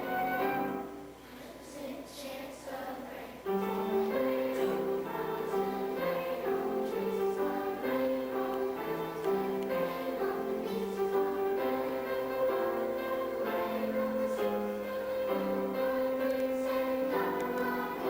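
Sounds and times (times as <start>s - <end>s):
instrumental accompaniment: 0.0s - 1.2s
choir singing: 0.0s - 18.0s.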